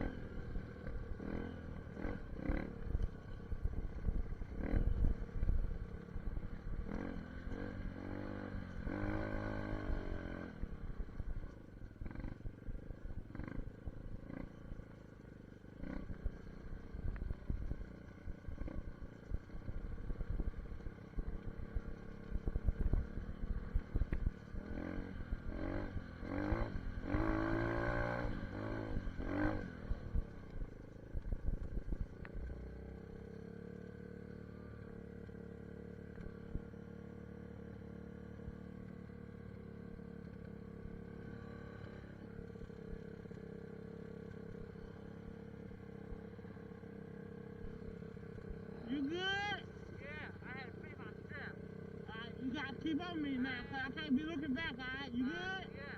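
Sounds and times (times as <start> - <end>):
dirt bike engine revving: 0.0 - 5.6, 6.4 - 10.8, 12.0 - 12.5, 13.1 - 14.8, 15.7 - 17.9, 18.5 - 30.4, 44.2 - 55.9.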